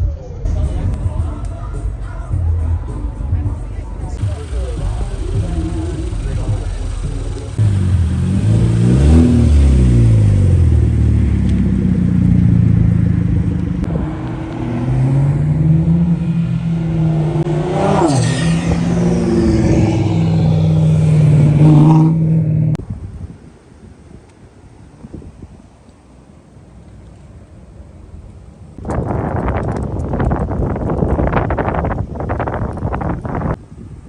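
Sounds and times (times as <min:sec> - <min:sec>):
car engine running under load: 0:04.2 - 0:14.6, 0:16.1 - 0:22.8.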